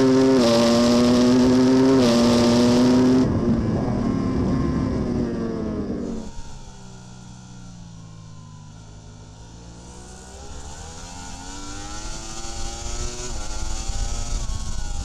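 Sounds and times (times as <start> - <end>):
racing motorcycle engine accelerating: 0.0 - 15.0
wind rush: 1.3 - 6.1.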